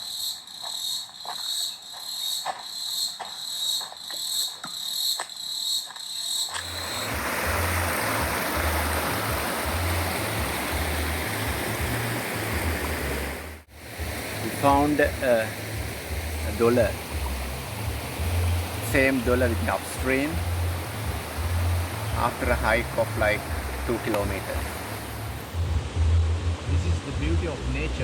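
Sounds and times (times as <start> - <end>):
insect trilling: 0.0 - 7.7
waterfall rushing: 6.6 - 25.6
low rumble: 25.2 - 27.9.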